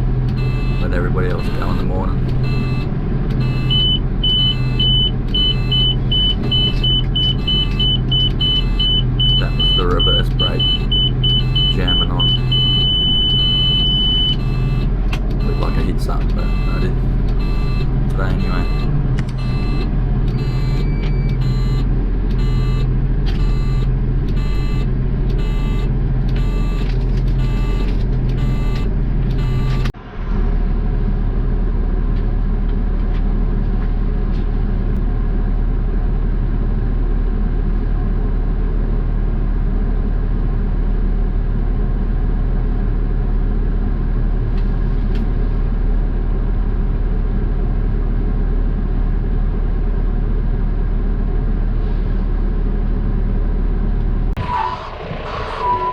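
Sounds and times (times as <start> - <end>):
diesel engine running: 0.0 - 55.9
reversing alarm beeping: 0.3 - 29.9, 54.4 - 55.9.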